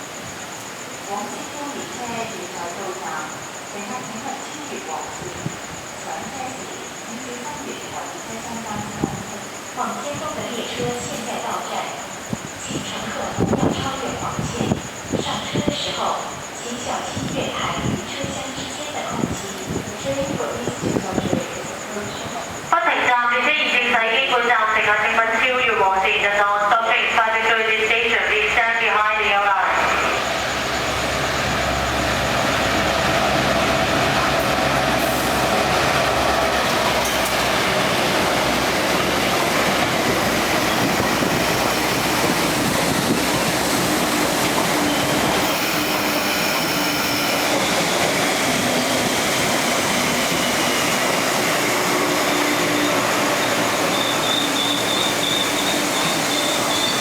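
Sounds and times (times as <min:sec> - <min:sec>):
freight train rumbling past: 0:27.8 - 0:57.0
thin wheel squeal: 0:51.7 - 0:57.0.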